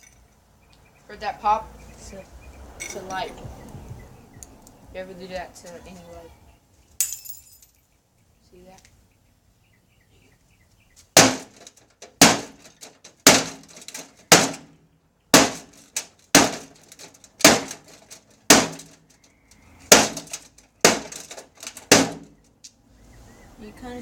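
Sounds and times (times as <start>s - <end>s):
hammer crashing on microwave: 11.2s - 14.7s, 15.4s - 16.8s, 17.4s - 18.9s, 19.9s - 22.4s
metal rattling: 11.2s - 22.6s.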